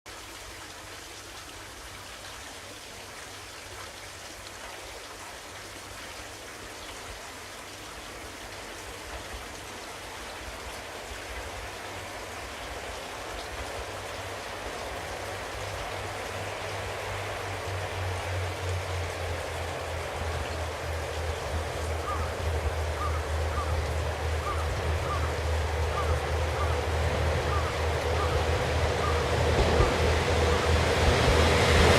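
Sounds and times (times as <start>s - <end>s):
diesel railcar approaching: 11.4s - 31.9s.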